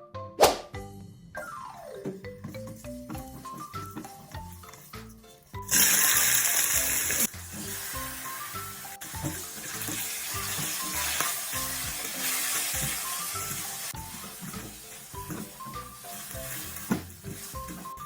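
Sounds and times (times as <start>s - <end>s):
food sizzling in hot oil: 5.5s - 18.0s.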